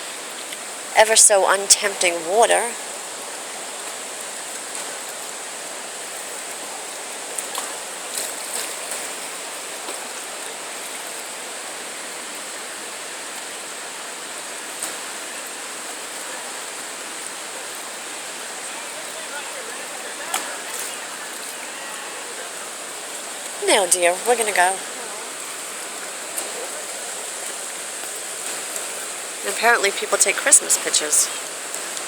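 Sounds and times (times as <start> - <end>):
river rapids roaring: 15.8 - 32.0.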